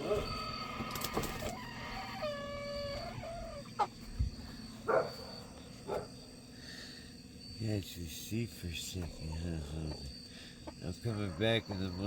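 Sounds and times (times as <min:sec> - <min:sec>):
chicken calling and squawking: 0:00.0 - 0:04.1, 0:10.6 - 0:12.0.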